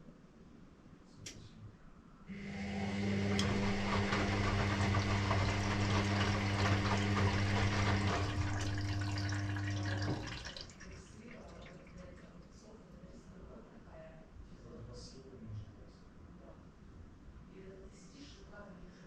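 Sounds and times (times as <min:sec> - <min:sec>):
washing machine pump hum: 0:02.3 - 0:12.3.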